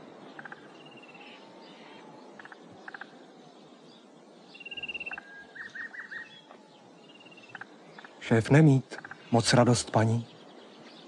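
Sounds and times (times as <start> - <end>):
low hiss: 0.0 - 11.0
rapid high bird trill: 4.6 - 8.3.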